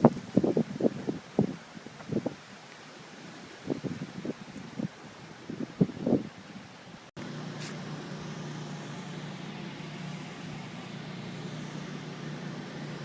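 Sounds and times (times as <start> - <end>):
engine humming steadily: 7.2 - 13.0.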